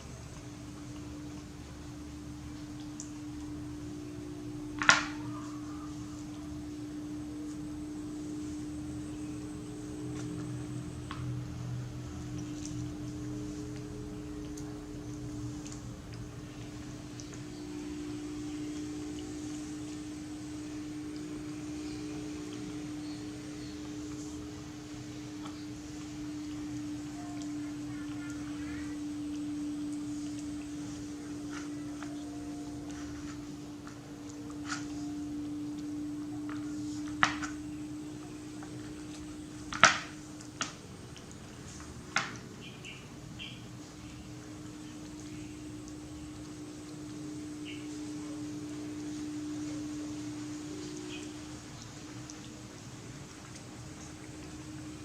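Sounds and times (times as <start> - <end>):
motor hum: 0.0 - 55.0.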